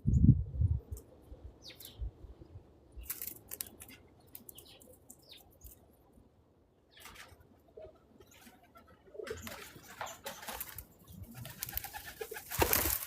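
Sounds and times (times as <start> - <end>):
small birds chirping: 0.9 - 6.2, 6.8 - 13.0.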